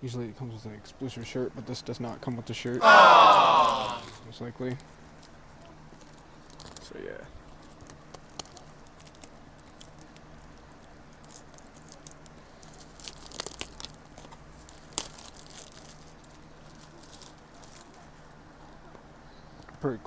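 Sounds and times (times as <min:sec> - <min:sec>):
packaging torn and crinkled: 0:13.0 - 0:14.0.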